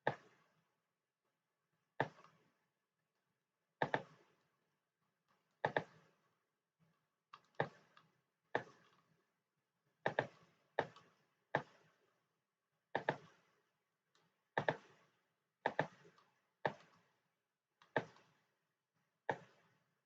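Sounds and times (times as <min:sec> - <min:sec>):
computer mouse clicking: 0:03.8 - 0:04.2, 0:05.6 - 0:06.0, 0:07.3 - 0:09.1, 0:10.0 - 0:11.7, 0:13.0 - 0:13.3, 0:14.2 - 0:14.9, 0:15.6 - 0:17.1, 0:17.8 - 0:18.4.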